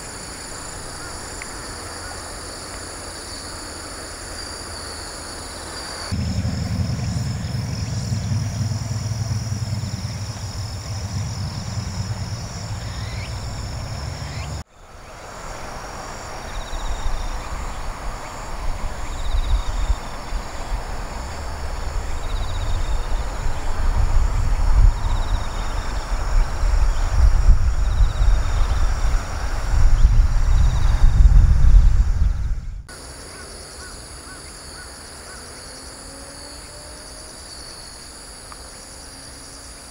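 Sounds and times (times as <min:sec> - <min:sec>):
insects buzzing: 0:00.0 - 0:31.5, 0:32.9 - 0:39.9
steady low rumble: 0:06.1 - 0:15.0, 0:17.0 - 0:32.9.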